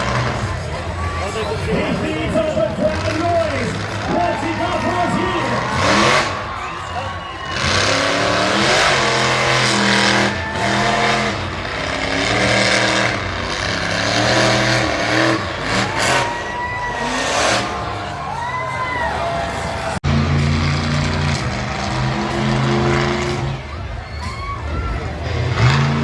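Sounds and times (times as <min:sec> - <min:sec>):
monster truck engine revving: 0:00.0 - 0:26.0.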